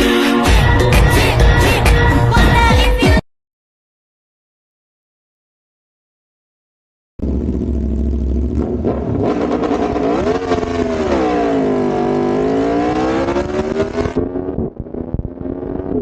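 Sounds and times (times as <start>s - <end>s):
motorcycle engine running hard: 7.2s - 16.0s.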